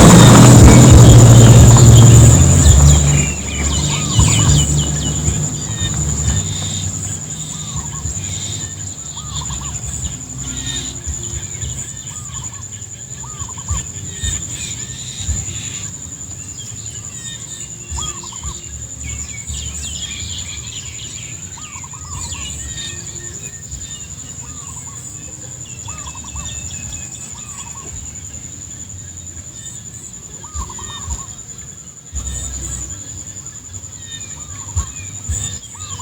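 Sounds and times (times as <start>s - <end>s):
low rumble: 0.0s - 12.5s
bird quavering calls: 0.0s - 15.9s
high-pitched whine: 0.0s - 28.9s
birds chirping: 0.0s - 36.0s.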